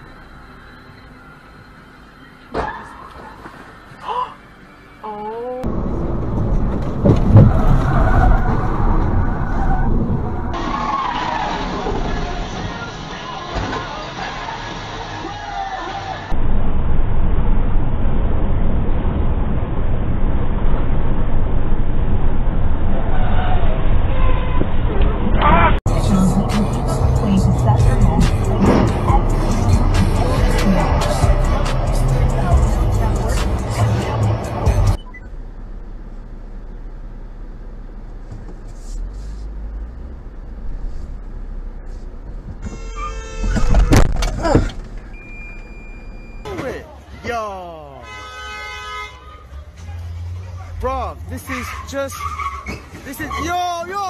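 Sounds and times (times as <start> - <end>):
car cabin road rumble: 5.2 - 47.9
wind noise inside car: 5.6 - 10.6, 38.2 - 45.8
car horn: 42.6 - 44.1, 47.8 - 49.4.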